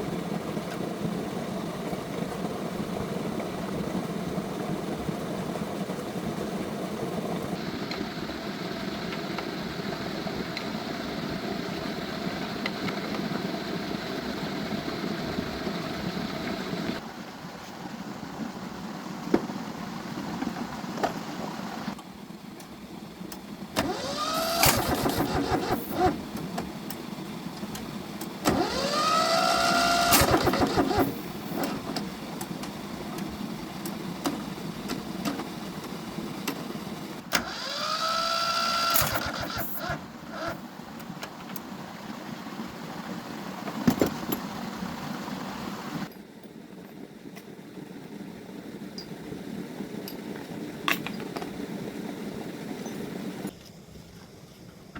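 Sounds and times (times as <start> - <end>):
motor running steadily: 0.0 - 17.0, 19.1 - 46.2
motor spinning up with whine: 23.3 - 46.1.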